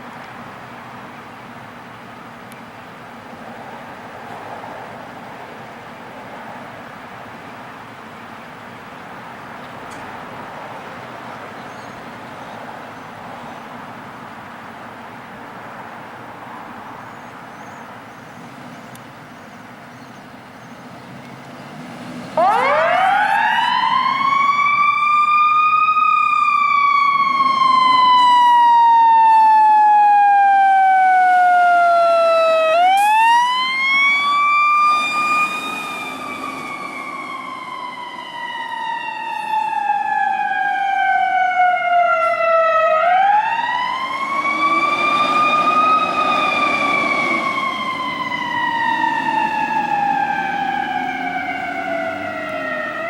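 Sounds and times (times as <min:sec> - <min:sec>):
fire engine siren wailing: 0:22.0 - 0:53.0.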